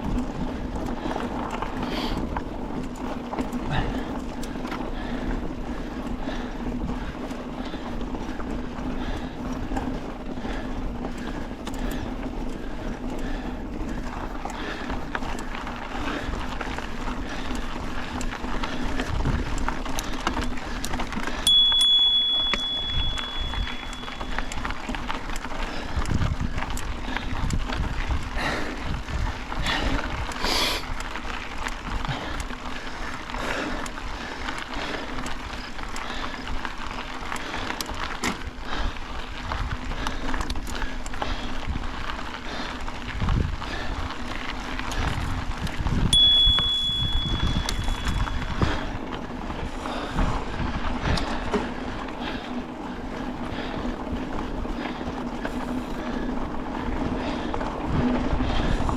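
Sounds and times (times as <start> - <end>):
bicycle rumbling on dirt trail: 0.0 - 58.9
bike knocks and rattles: 44.9 - 52.0.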